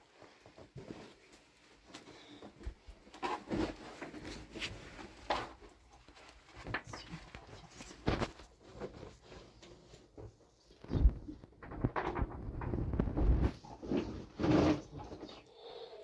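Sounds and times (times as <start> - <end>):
objects knocking and scraping: 8.0 - 15.4.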